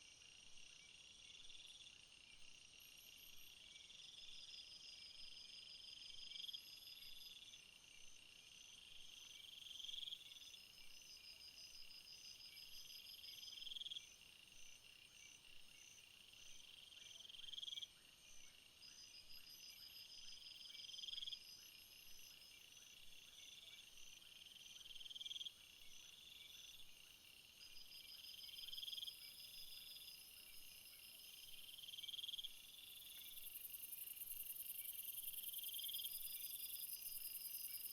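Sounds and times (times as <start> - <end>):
cricket-like trills: 18.9 - 37.9.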